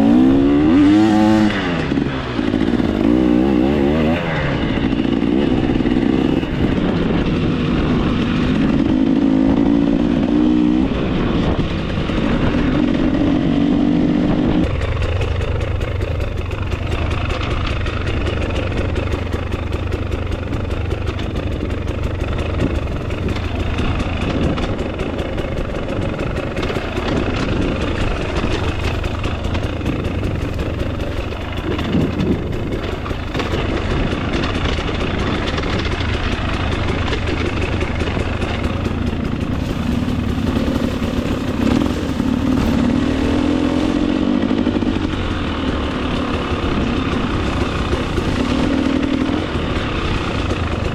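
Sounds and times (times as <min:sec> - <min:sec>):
dirt bike engine revving: 0:00.0 - 0:15.0, 0:22.2 - 0:50.9
bike knocks and rattles: 0:14.6 - 0:50.9.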